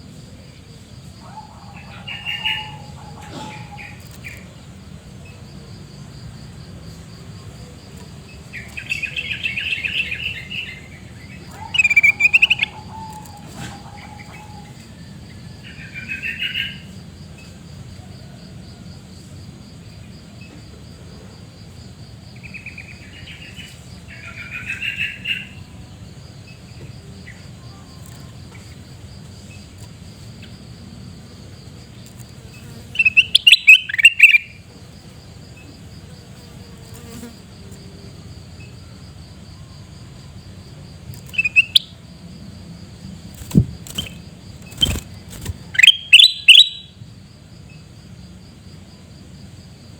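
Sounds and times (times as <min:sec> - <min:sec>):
high insect drone: 0:00.0 - 0:49.9
bulbul chattering calls: 0:01.2 - 0:04.4, 0:08.6 - 0:14.7, 0:33.0 - 0:34.5, 0:41.3 - 0:41.9, 0:43.5 - 0:46.9.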